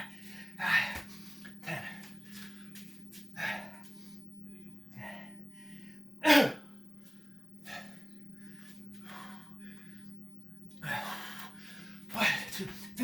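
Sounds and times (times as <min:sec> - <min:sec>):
man breathing hard: 0:00.0 - 0:04.3, 0:04.9 - 0:06.1, 0:07.0 - 0:10.2, 0:10.8 - 0:13.0.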